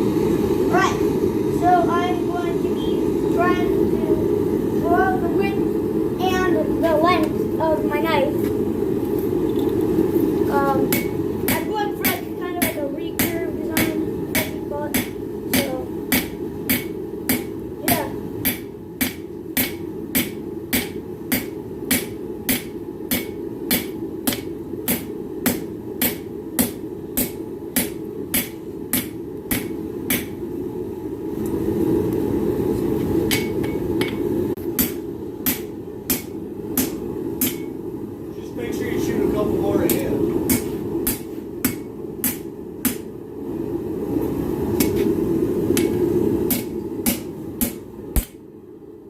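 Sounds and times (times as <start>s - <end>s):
hammer striking hot steel on anvil: 10.8s - 30.4s, 33.0s - 37.8s, 39.8s - 43.1s, 44.8s - 48.4s.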